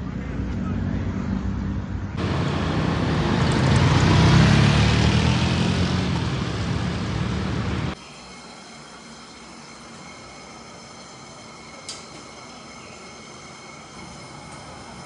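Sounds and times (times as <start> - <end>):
vehicle passing: 1.1 - 8.0.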